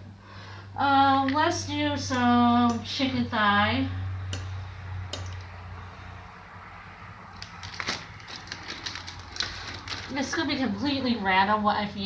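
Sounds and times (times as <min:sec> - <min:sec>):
low hum: 0:00.0 - 0:09.3
raw chicken and packaging handled: 0:07.4 - 0:10.3.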